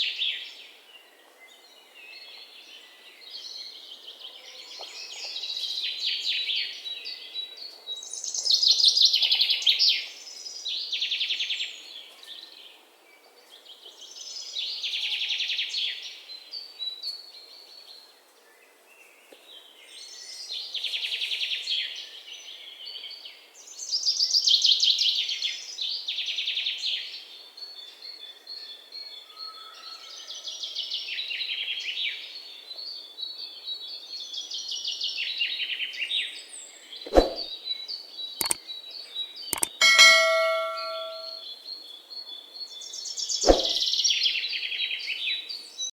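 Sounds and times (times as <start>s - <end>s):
bird chirps and trills: 39.6s - 41.4s.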